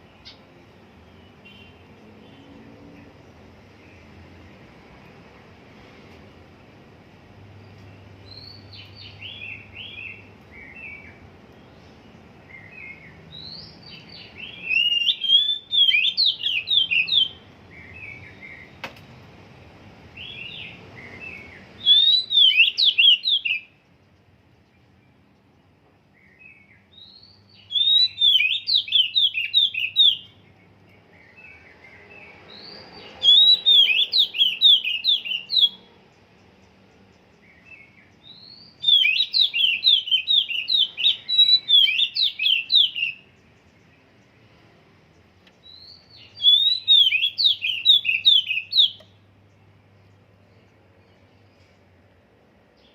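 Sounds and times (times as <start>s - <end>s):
bird singing rapid high chirps: 7.6s - 18.8s, 20.1s - 44.4s, 45.6s - 51.5s.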